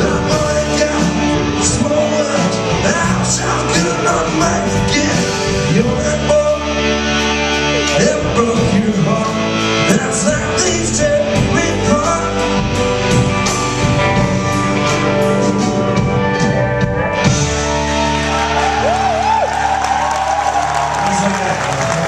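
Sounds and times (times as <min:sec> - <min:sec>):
person singing: 0:00.0 - 0:13.1
rock band playing live: 0:00.0 - 0:22.0.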